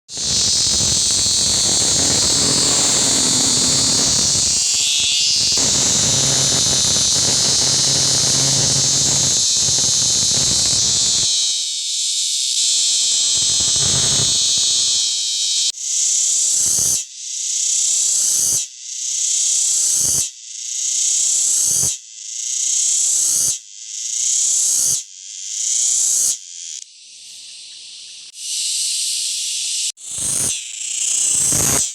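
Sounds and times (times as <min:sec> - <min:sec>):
cicada buzzing: 0:00.1 - 0:17.0, 0:24.6 - 0:31.9.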